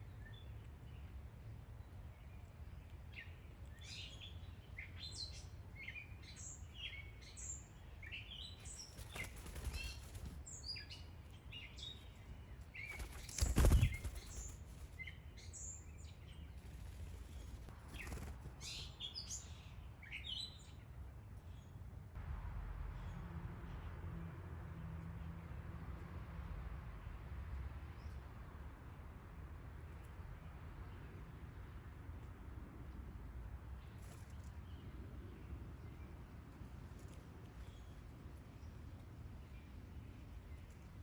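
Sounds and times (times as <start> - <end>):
birds chirping: 0.0 - 20.9
wings fluttering: 8.5 - 19.4, 33.9 - 34.6.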